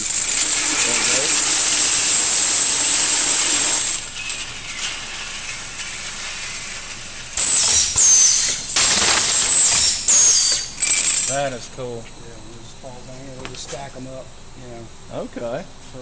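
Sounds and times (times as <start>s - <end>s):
high falling squeal: 0.0s - 14.3s
saw machine hissing: 0.0s - 16.0s.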